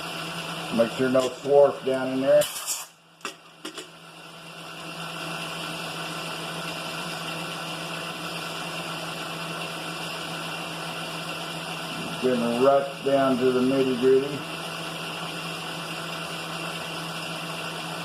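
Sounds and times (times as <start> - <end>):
milling machine motor hum and whine: 4.7 - 18.0.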